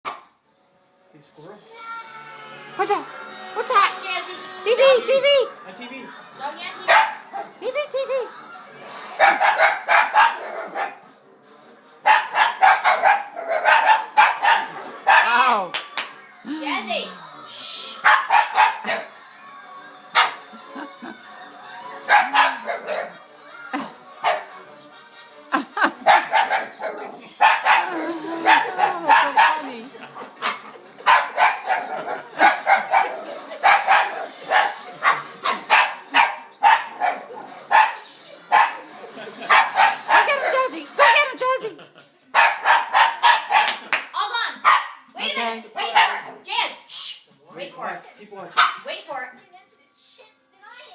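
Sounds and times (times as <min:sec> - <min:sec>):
dog barking: 0:06.9 - 0:07.6, 0:09.2 - 0:11.0, 0:12.0 - 0:15.4, 0:18.0 - 0:19.1, 0:20.1 - 0:20.4, 0:22.1 - 0:23.2, 0:24.2 - 0:24.5, 0:26.0 - 0:29.7, 0:30.4 - 0:38.8, 0:39.4 - 0:41.2, 0:42.3 - 0:43.8, 0:44.6 - 0:45.1, 0:45.8 - 0:46.4, 0:48.6 - 0:48.9.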